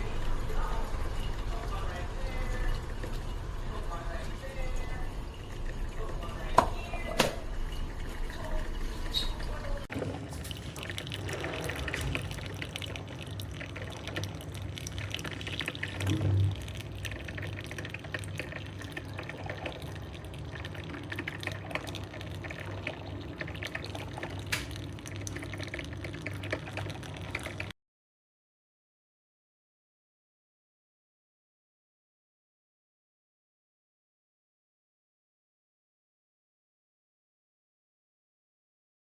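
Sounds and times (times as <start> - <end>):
small pump humming: 0.0 - 27.7
coffee sputtering and dripping: 0.0 - 27.8.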